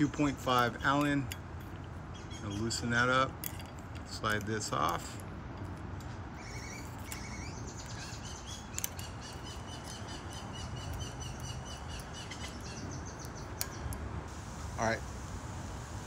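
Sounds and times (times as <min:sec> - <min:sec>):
small birds chirping: 0:00.0 - 0:03.4, 0:06.2 - 0:14.3
low outdoor rumble: 0:00.0 - 0:16.0.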